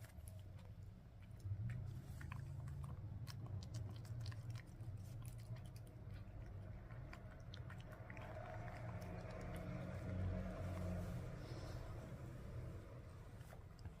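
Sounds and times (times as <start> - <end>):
cat chewing clicks: 0.0 - 10.5.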